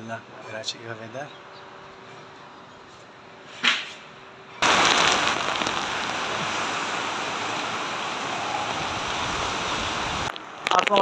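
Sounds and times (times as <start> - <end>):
heavy rain pouring: 4.6 - 11.0.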